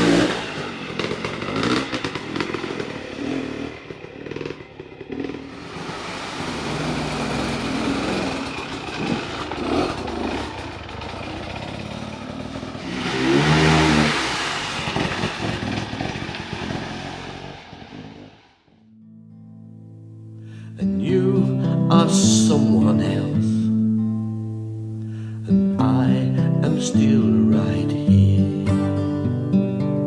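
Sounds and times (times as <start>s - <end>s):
dirt bike engine revving: 0.0s - 18.5s.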